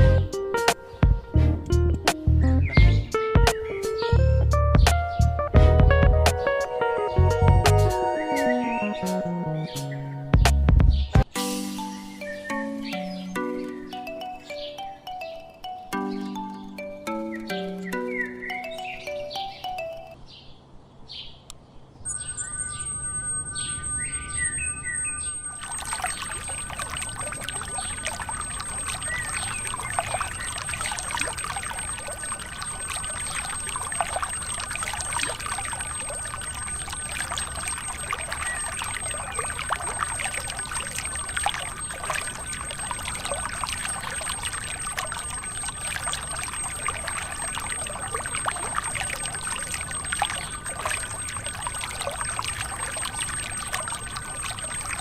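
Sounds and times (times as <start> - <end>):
faint high tones: 22.0 - 55.0
water pouring and splashing: 24.8 - 55.0.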